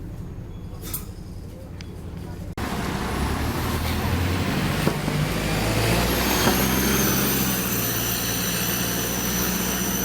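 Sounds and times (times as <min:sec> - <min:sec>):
road noise: 0:01.4 - 0:10.0
bus engine drone: 0:02.4 - 0:10.0.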